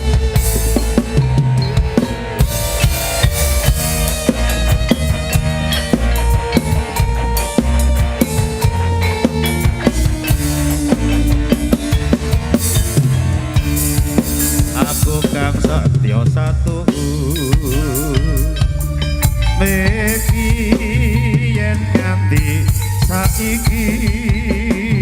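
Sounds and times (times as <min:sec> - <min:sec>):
drum kit beat: 0:00.0 - 0:25.0
live band playing: 0:00.0 - 0:25.0.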